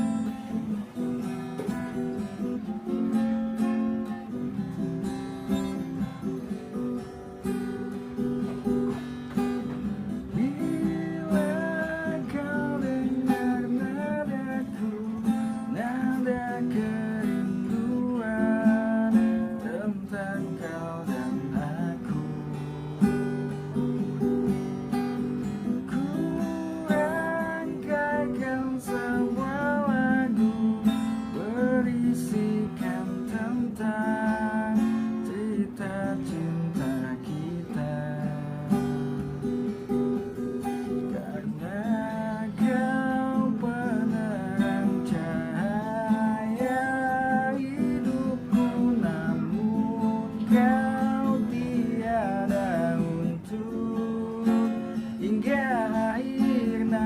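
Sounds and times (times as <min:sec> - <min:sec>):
acoustic guitar strumming chords: 0:00.0 - 0:57.0
person singing a pop ballad: 0:09.4 - 0:22.9, 0:25.6 - 0:39.2, 0:40.8 - 0:57.0.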